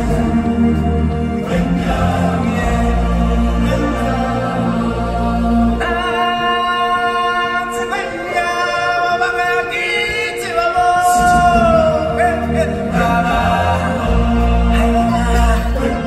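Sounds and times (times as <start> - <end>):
deep bass: 0.0 - 5.8, 11.2 - 16.0
stage-show music: 0.0 - 16.0.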